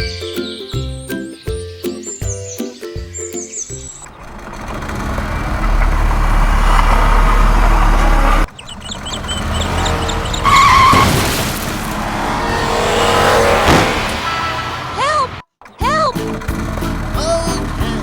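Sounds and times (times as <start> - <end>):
vehicle engine running: 3.0 - 10.8, 11.6 - 18.0.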